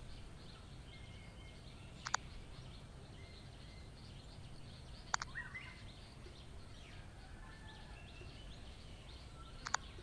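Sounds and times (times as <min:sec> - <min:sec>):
faint bird chirps: 0:00.0 - 0:10.0
low steady hum: 0:00.0 - 0:10.0
sharp double click: 0:02.0 - 0:02.2, 0:05.1 - 0:05.4, 0:09.6 - 0:09.9.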